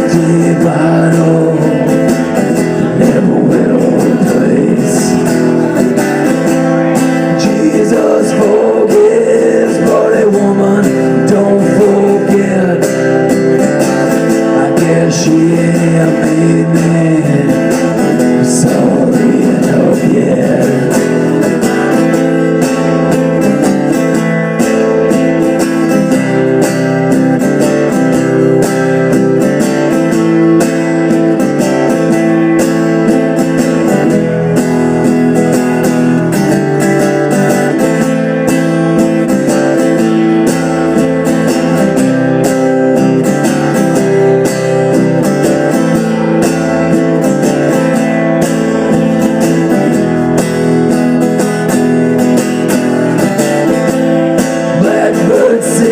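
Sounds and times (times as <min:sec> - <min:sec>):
guitar playing slow chords: 0:00.0 - 0:55.9.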